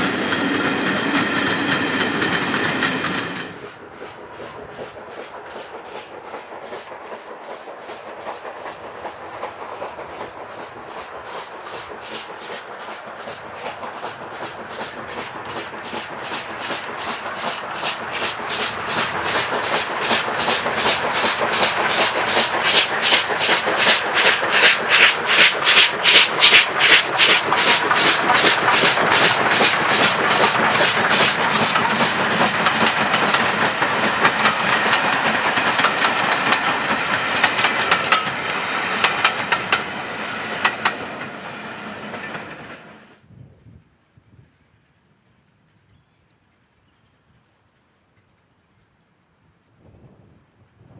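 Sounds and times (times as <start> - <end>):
steam locomotive exhaust beating: 0.0 - 43.1
carriages clattering over rail joints: 8.4 - 42.8.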